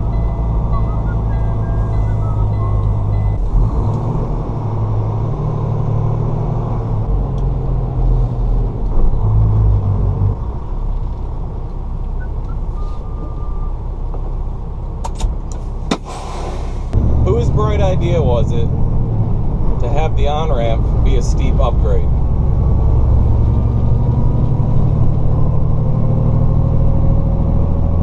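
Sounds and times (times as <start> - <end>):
truck diesel engine pulling away: 0.0 - 14.1.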